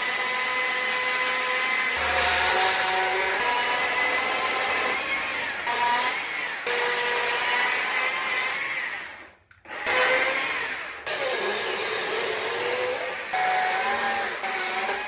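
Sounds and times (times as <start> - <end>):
power carving tool whining: 0.0 - 15.0.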